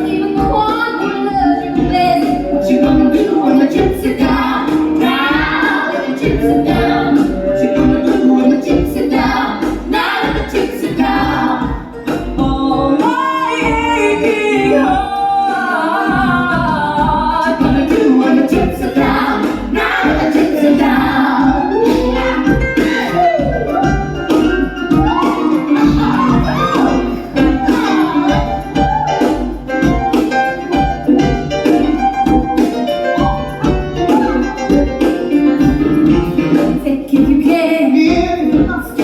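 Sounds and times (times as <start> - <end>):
voices singing in harmony with band: 0.0 - 30.2.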